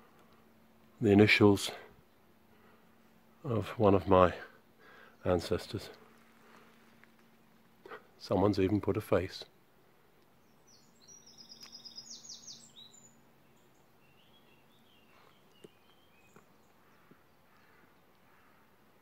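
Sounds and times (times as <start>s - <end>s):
songbird singing: 0.0s - 19.0s
faint bird chirps: 10.3s - 19.0s.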